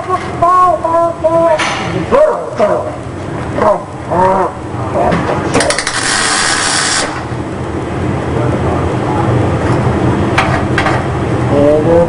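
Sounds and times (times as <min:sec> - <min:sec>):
low machine hum: 0:00.0 - 0:12.0
welding arc crackling and hissing: 0:05.6 - 0:07.4.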